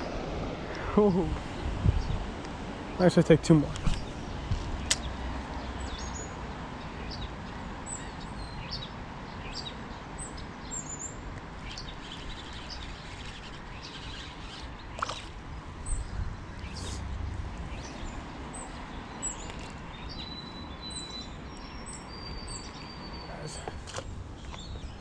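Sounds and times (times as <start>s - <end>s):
outdoor background hiss: 0.0s - 25.0s
small birds chirping: 2.9s - 25.0s
sharp click: 3.7s - 5.1s.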